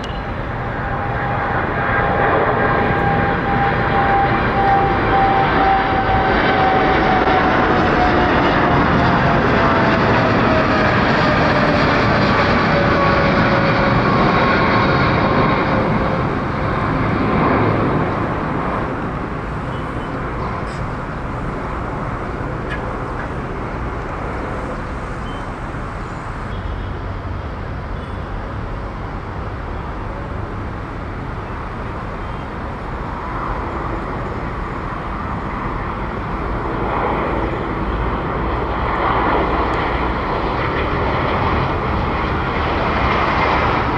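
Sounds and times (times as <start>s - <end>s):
jet engines whining: 0.0s - 43.9s
low jet rumble: 0.0s - 43.9s.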